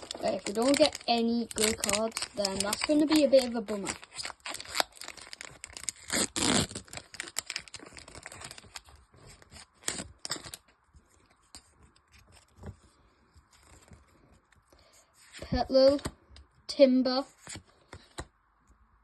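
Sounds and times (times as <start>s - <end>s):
foil wrapper tearing and crinkling: 0.0s - 10.7s.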